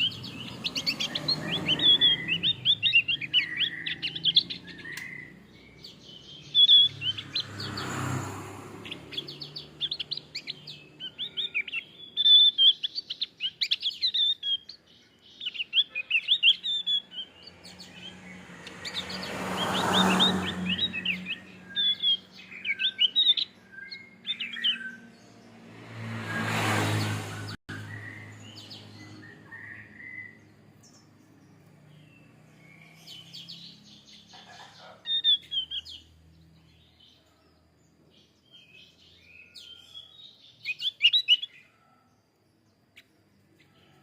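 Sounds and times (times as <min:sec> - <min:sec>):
bird chirping song: 0:00.0 - 0:44.0.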